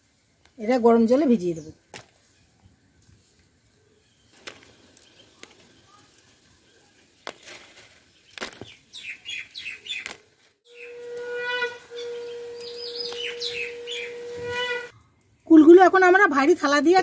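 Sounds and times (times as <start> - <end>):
small birds chirping: 1.3 - 15.8
steady droning tone: 10.7 - 14.9.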